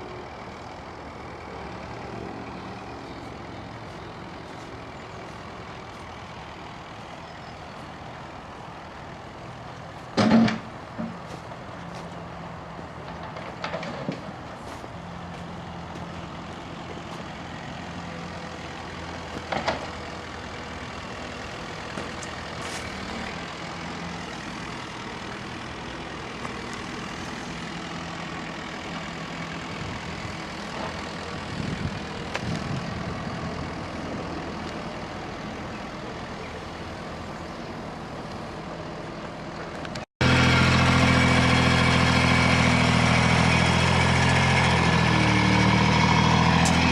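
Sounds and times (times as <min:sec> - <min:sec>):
earthmoving machine engine running: 0:40.2 - 0:46.9.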